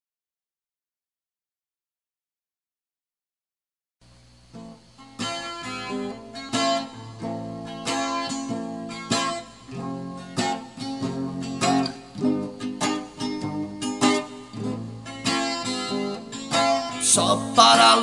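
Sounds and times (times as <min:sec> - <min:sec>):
strummed guitar music: 0:04.5 - 0:18.0.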